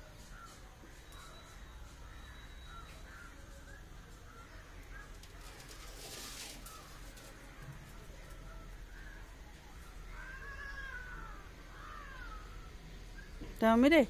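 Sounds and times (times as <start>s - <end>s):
crow-like bird calls: 0.3s - 3.8s, 9.9s - 12.8s.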